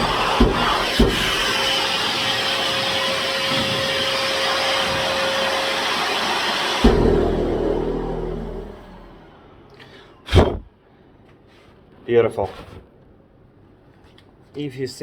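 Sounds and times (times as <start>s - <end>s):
knocks: 0.0s - 1.9s, 6.7s - 9.2s
angle grinder grinding concrete: 0.0s - 9.2s
vacuum running: 0.0s - 10.6s.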